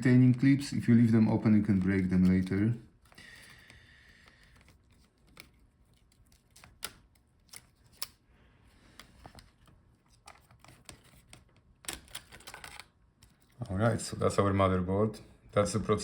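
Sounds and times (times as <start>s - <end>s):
small clicks of laptop parts: 3.0s - 8.2s, 8.8s - 13.6s.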